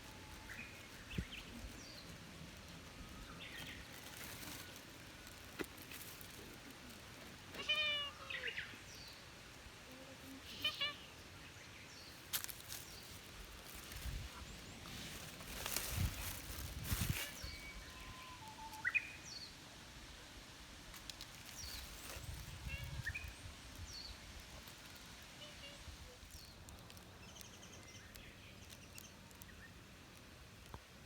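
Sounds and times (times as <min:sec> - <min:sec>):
cat meowing: 0:07.5 - 0:08.6, 0:10.5 - 0:11.1.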